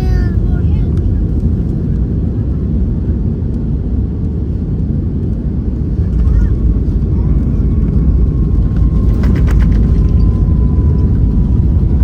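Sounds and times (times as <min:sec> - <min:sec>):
airliner cabin rumble: 0:00.0 - 0:12.0
faint steady whine: 0:05.6 - 0:12.0.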